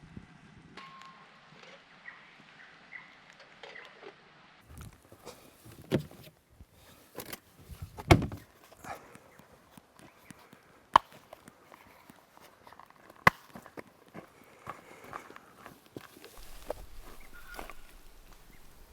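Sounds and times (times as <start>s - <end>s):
irregular thumps and knocks: 5.7s - 6.3s, 7.8s - 8.5s.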